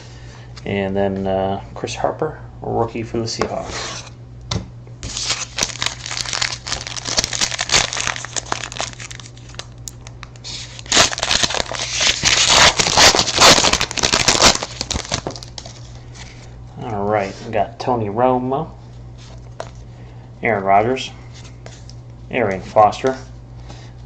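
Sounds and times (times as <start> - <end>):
foil wrapper crinkling: 5.0 - 16.4.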